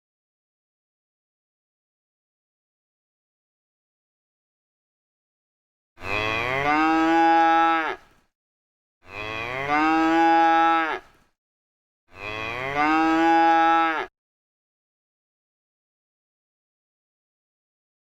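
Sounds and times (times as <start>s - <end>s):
cow mooing: 6.0s - 8.1s, 9.0s - 11.2s, 12.1s - 14.1s.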